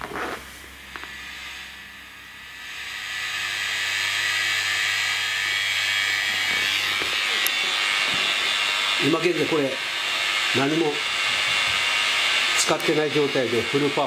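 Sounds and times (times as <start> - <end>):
amplifier high hiss: 0.0 - 3.5
amplifier low hum: 0.0 - 14.0.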